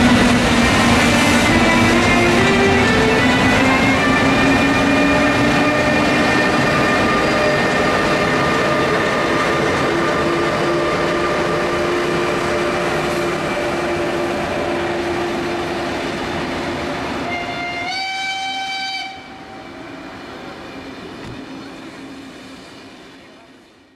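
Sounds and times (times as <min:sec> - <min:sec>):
train rolling: 0:00.0 - 0:23.9.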